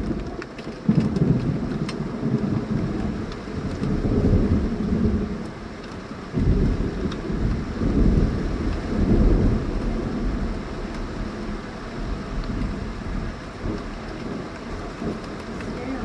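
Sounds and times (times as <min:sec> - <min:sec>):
heavy rain: 0:00.0 - 0:16.0
thunder rumbling: 0:00.0 - 0:16.0.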